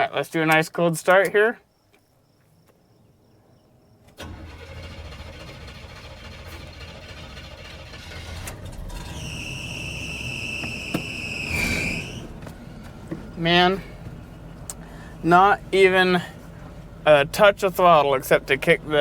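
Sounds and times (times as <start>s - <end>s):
truck engine starting and idling: 4.1s - 19.0s
high belt squeal: 8.9s - 12.4s.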